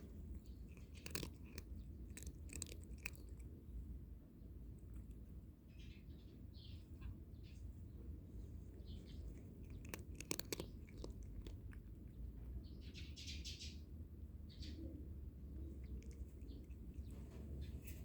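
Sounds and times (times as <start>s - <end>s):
birds chirping: 0.0s - 3.5s, 5.6s - 18.0s
cat crunching dry kibble: 0.0s - 3.8s, 8.4s - 12.6s, 15.5s - 18.0s.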